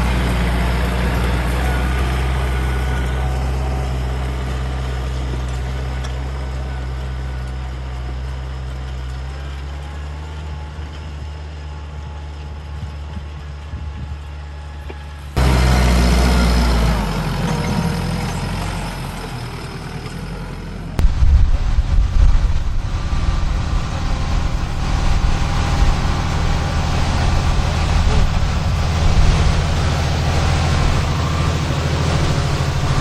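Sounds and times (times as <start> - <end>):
small tractor engines running: 0.0 - 33.0
rapid low pulsing: 21.0 - 33.0.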